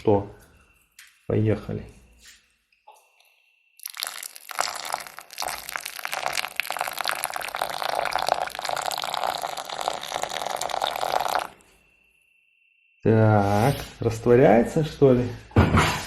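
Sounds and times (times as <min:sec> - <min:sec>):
water pouring from kettle: 0:03.8 - 0:11.6.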